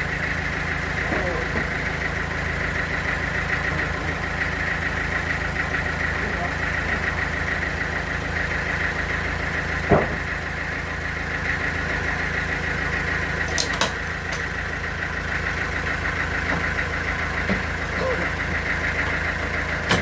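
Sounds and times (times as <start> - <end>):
sawmill machinery humming: 0.0 - 20.0
knock: 9.9 - 10.2.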